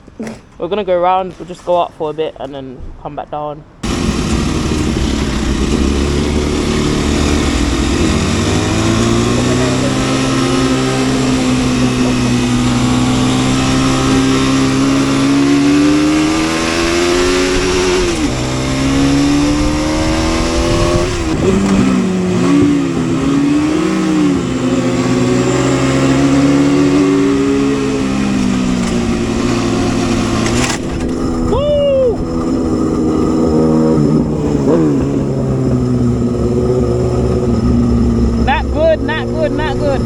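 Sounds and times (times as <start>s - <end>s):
motorcycle engine revving: 3.8s - 40.0s
wind rush on microphone: 15.9s - 23.6s, 27.2s - 38.9s.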